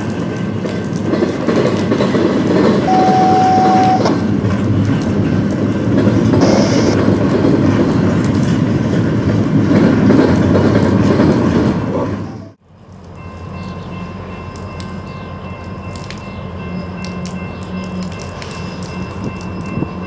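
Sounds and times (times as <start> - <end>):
wheels clattering over rails: 0.0 - 12.5
train rumbling past: 0.0 - 20.0.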